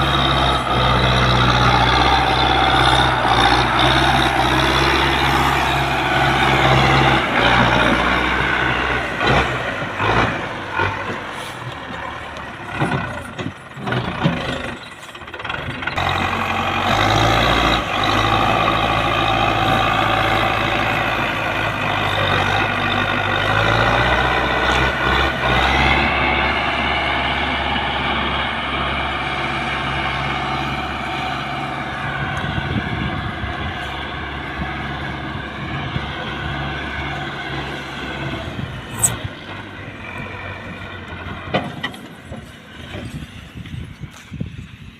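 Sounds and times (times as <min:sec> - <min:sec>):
heavy diesel engines under load: 0:00.0 - 0:44.9
knocks and clanks: 0:12.7 - 0:16.0, 0:41.4 - 0:43.2.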